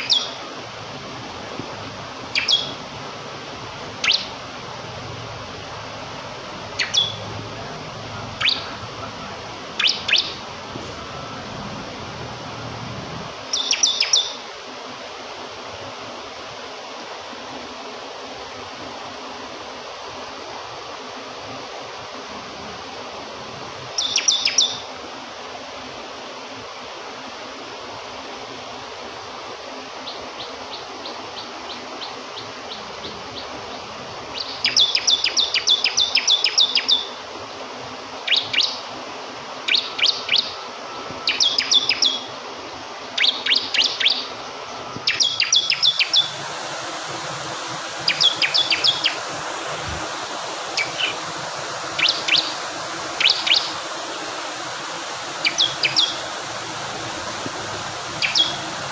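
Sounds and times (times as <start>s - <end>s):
bird singing rapid high notes: 0.0s - 0.4s, 2.3s - 3.0s, 4.0s - 4.4s, 6.7s - 7.3s, 8.4s - 8.8s, 9.8s - 10.4s, 13.5s - 14.4s, 41.2s - 42.3s, 45.0s - 46.4s, 48.0s - 49.3s, 50.7s - 51.2s, 51.8s - 53.9s, 55.3s - 56.8s, 58.2s - 58.8s
flowing water: 0.0s - 58.9s.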